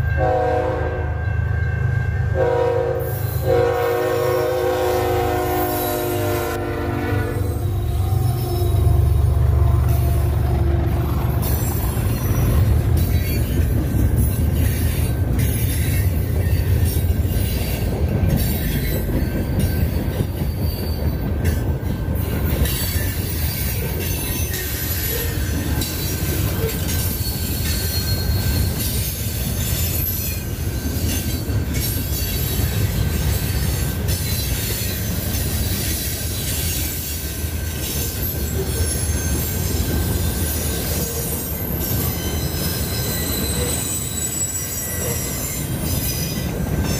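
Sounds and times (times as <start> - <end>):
freight train rumbling: 0.0 - 46.9
wheel squeal: 22.6 - 46.9.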